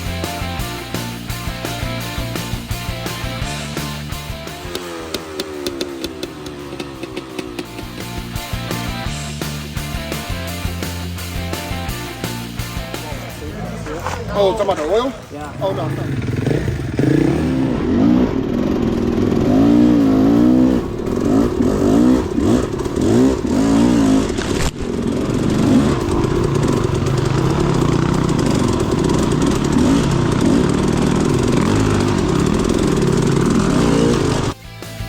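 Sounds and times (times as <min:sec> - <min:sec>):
dirt bike engine revving: 0:00.0 - 0:34.6.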